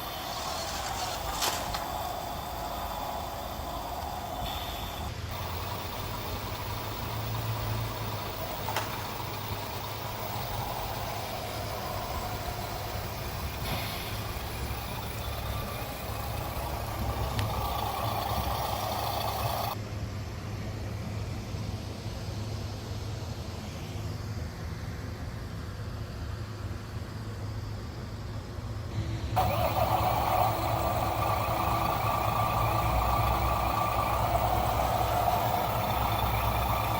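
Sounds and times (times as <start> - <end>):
toy truck motor and gears whining: 0.0 - 19.8, 29.0 - 36.9
low hum and tyre noise: 0.0 - 36.9.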